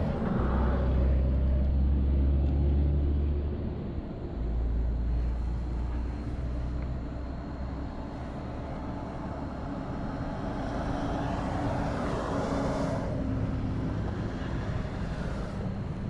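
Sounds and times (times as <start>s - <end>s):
low traffic rumble: 0.0s - 16.0s
vehicle passing by: 10.0s - 16.0s.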